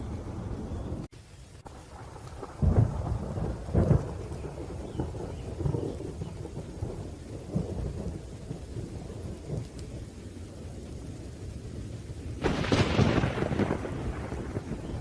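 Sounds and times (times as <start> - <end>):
steady rain: 0.0 - 15.0
thunder rumbling: 0.0 - 15.0
thunder crack: 1.7 - 9.8, 12.4 - 15.0.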